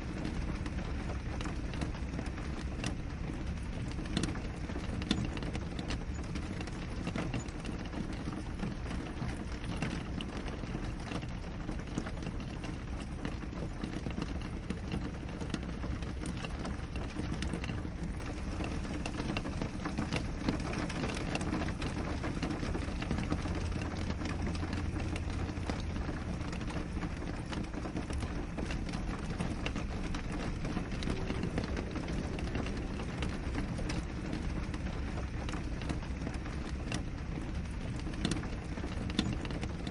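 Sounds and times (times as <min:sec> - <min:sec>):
rain pattering on a window: 0:00.0 - 0:39.9.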